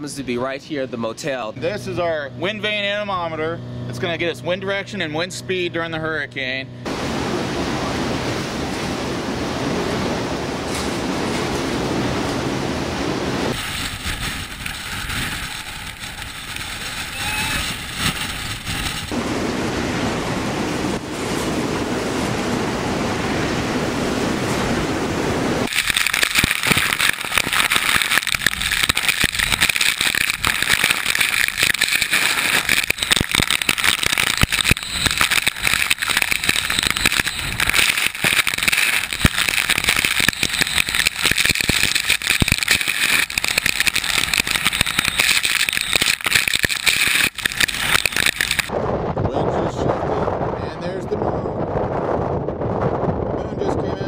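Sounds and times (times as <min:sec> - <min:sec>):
hurricane wind: 0:06.8 - 0:54.0
rain: 0:06.9 - 0:48.7.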